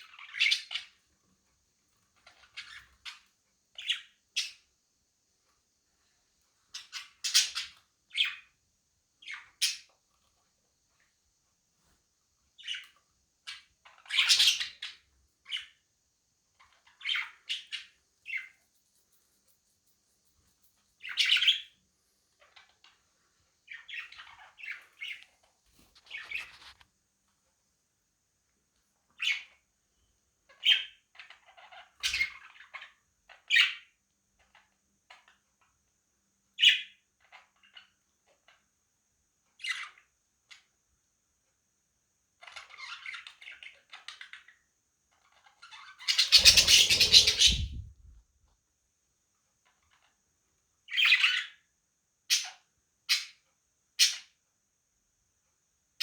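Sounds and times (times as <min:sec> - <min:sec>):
budgerigars chirping: 0:13.5 - 0:15.7, 0:21.0 - 0:21.7, 0:45.7 - 0:47.9
harsh squawks: 0:46.1 - 0:47.9.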